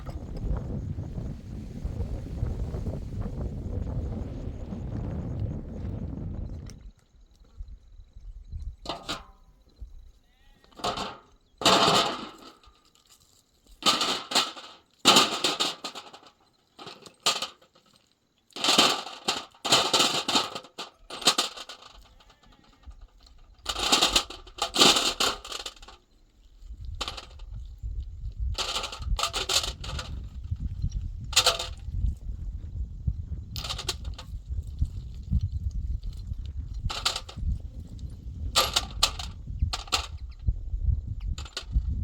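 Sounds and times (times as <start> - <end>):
low rumble: 0.0 - 7.0, 30.0 - 42.0.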